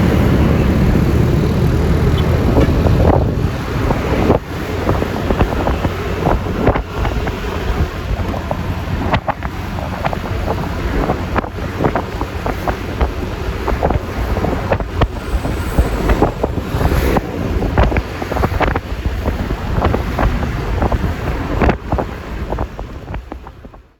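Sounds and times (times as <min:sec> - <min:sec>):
road rumble: 0:00.0 - 0:23.9
wind buffeting microphone: 0:00.0 - 0:23.9
wind rush: 0:00.0 - 0:23.9.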